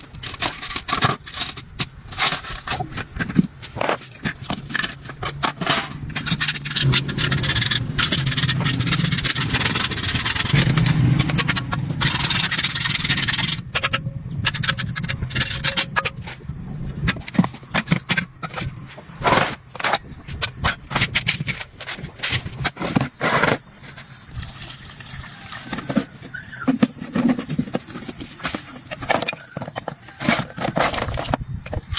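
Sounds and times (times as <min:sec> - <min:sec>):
clicks and knocks of hand tools: 0:00.1 - 0:16.4
scraping and rubbing: 0:02.2 - 0:31.4
low hum: 0:04.5 - 0:21.7.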